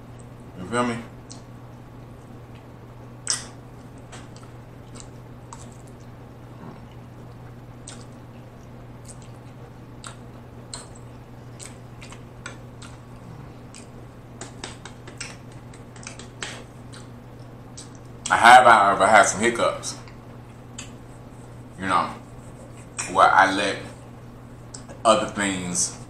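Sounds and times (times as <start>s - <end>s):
steady low hum: 0.0s - 26.0s
wet chewing and mouth clicks: 1.2s - 1.5s, 2.5s - 18.3s, 20.0s - 21.0s.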